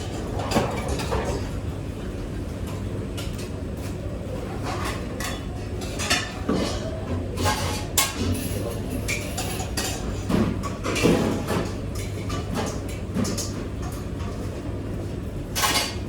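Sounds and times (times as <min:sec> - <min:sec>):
dishes and cutlery clattering: 0:00.0 - 0:01.6, 0:04.6 - 0:14.3, 0:15.6 - 0:16.0.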